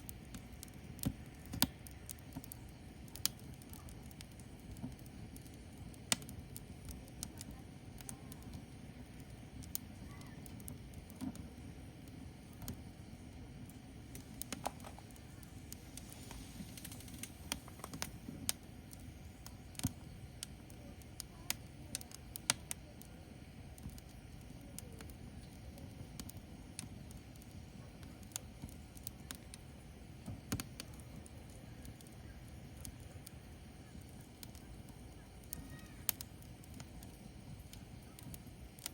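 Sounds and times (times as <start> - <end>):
low steady rumble: 0.0 - 27.8
fire crackling and popping: 0.0 - 38.9.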